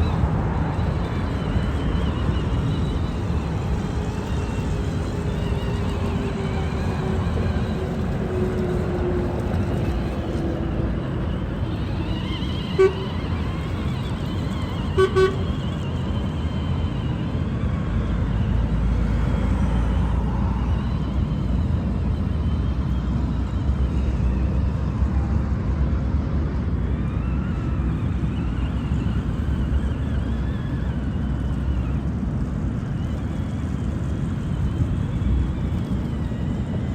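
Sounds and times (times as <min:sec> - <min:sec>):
low outdoor rumble: 0:00.0 - 0:36.9.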